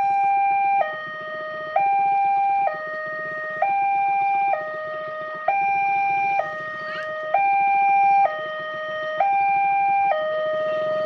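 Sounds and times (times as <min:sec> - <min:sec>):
level-crossing two-tone alarm: 0:00.0 - 0:11.0.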